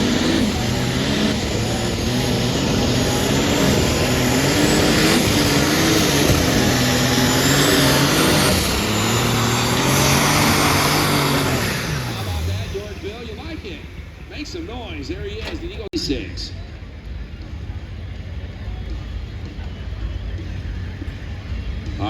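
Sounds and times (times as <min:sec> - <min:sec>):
tractor engine running under load: 0:00.0 - 0:15.4.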